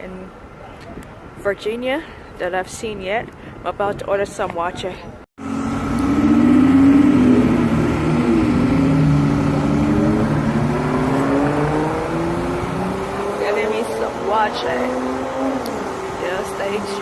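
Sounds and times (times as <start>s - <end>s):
vehicle engine gaining speed: 5.4s - 17.0s.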